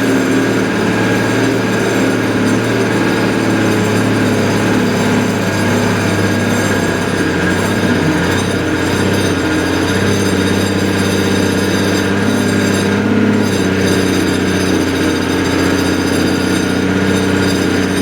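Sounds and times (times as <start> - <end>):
heavy engine running: 0.0 - 18.0.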